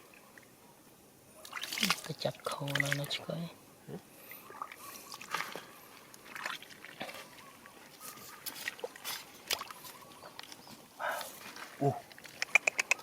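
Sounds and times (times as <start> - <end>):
water sloshing and trickling: 1.3 - 12.5
splashes and knocks: 1.4 - 3.2, 4.6 - 7.4, 8.1 - 10.6.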